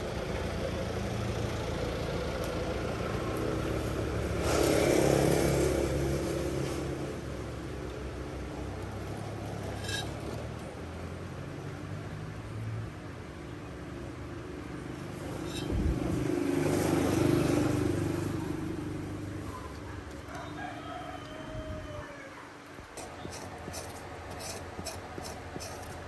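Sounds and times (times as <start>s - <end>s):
vehicle passing: 15.0s - 19.6s.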